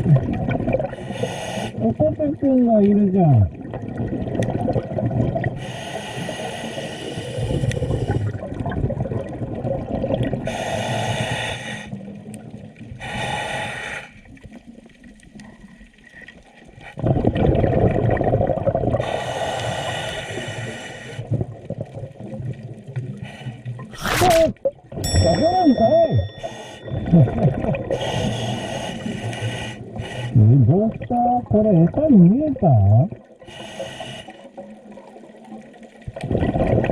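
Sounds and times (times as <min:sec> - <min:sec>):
exhaled bubbles rumbling: 0:00.0 - 0:01.0, 0:03.1 - 0:05.6, 0:07.4 - 0:10.5, 0:16.9 - 0:19.1, 0:21.2 - 0:28.2, 0:29.9 - 0:33.4, 0:34.6 - 0:36.9
regulator hissing inhalations: 0:01.1 - 0:01.8, 0:26.3 - 0:26.9, 0:27.9 - 0:30.4.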